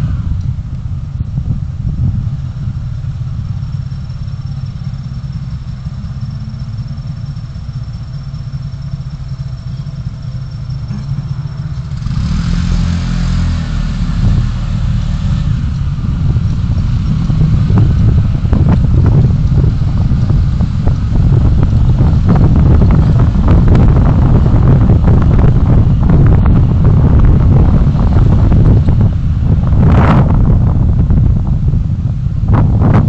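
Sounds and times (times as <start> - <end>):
rushing noise: 0.0 - 4.1, 10.6 - 33.0
road vehicle rumble: 0.0 - 33.0.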